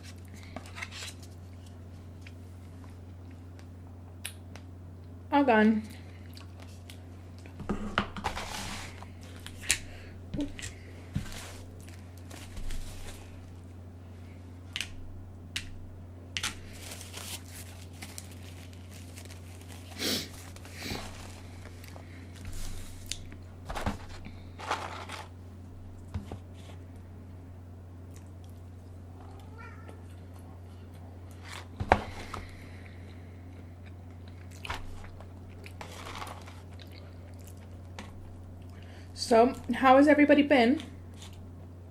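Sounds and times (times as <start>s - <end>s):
steady low hum: 0.0s - 41.9s
chewing and crunching: 28.1s - 28.7s, 32.7s - 38.9s.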